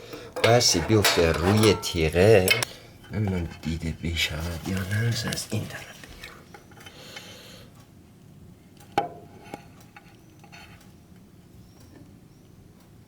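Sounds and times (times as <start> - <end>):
metal scraping: 0.4 - 5.2.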